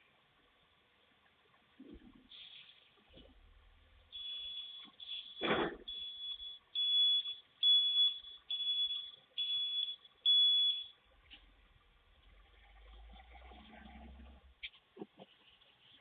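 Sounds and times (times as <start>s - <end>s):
truck reversing alarm beeping: 4.0s - 11.0s.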